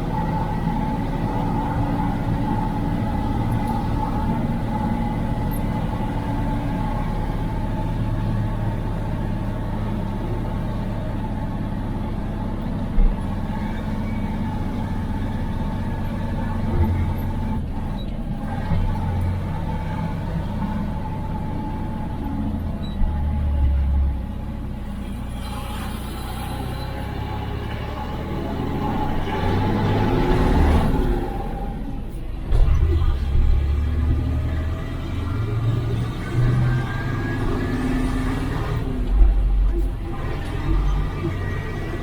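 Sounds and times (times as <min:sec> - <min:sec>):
diesel truck engine running: 0:00.0 - 0:42.0
low rumble: 0:38.8 - 0:42.0.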